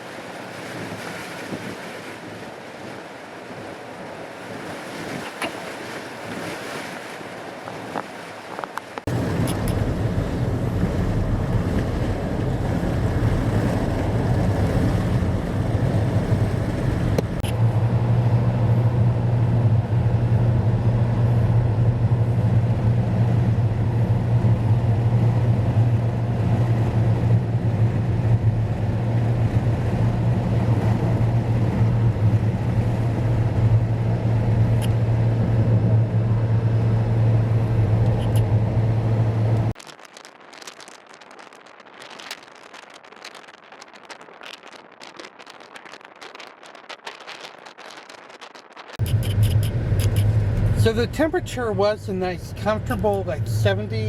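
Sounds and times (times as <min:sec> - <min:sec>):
car tyre and engine noise: 0:00.0 - 0:54.0
strong low drone: 0:09.1 - 0:39.8, 0:49.0 - 0:54.0.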